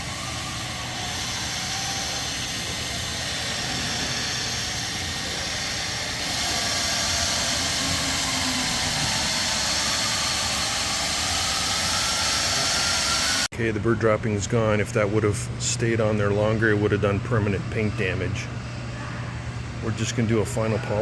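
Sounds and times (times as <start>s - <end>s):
electric polisher whirring: 0.0s - 13.5s.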